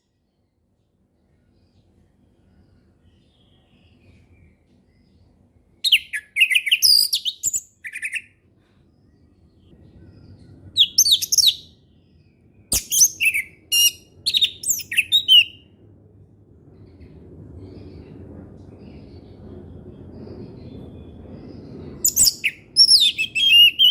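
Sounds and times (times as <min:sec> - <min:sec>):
low rumble: 0:08.4 - 0:23.8.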